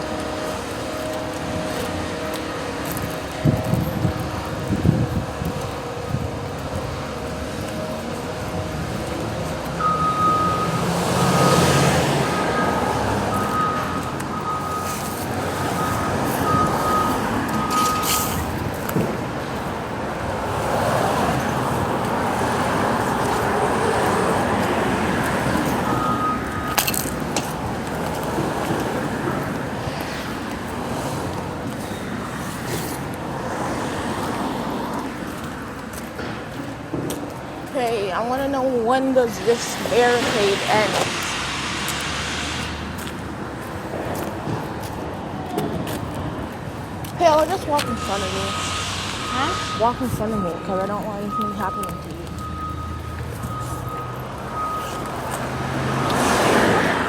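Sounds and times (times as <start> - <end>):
vehicles passing: 0.0 - 57.0
high beeps: 9.8 - 10.8, 11.4 - 18.4, 47.7 - 55.3.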